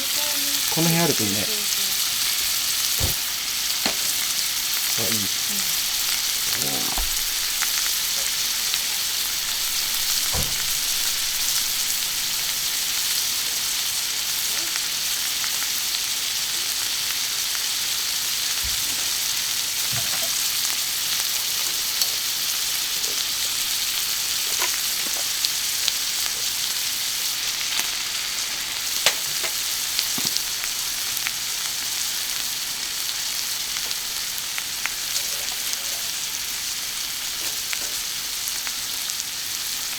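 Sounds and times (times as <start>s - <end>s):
meat sizzling on griddle: 0.0s - 39.9s
fat spattering pops: 2.9s - 4.1s.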